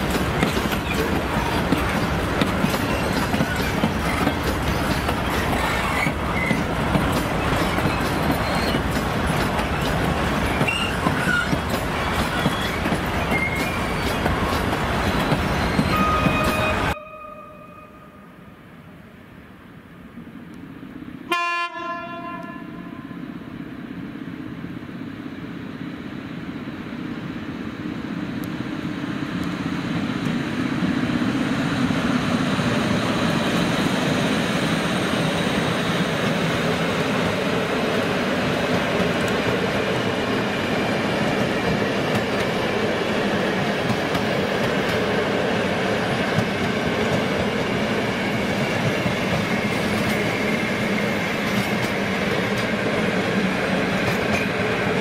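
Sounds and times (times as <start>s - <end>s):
train wheels on rails: 0.0s - 17.0s, 23.8s - 55.0s
train horn: 15.9s - 18.4s, 21.3s - 23.2s.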